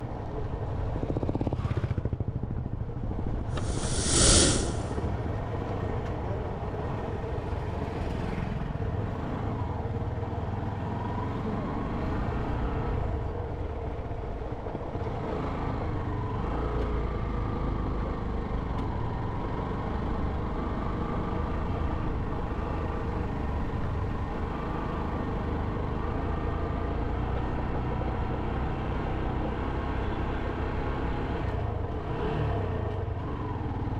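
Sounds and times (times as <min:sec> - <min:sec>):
loud hiss: 0:03.6 - 0:05.0.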